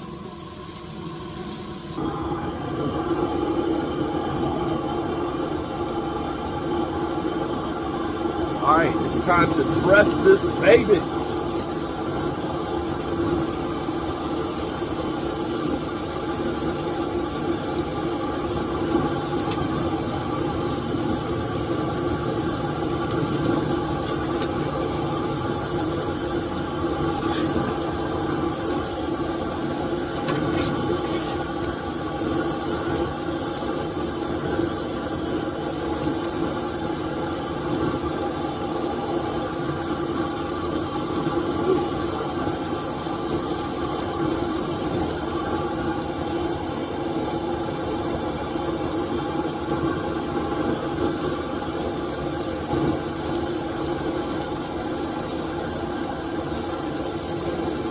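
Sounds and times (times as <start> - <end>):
low machine hum: 0.0 - 36.6.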